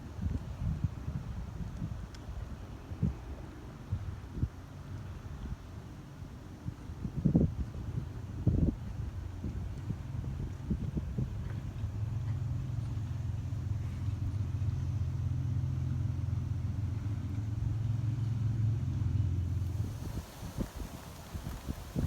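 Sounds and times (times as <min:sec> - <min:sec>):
steady low rumble: 0:19.4 - 0:22.0.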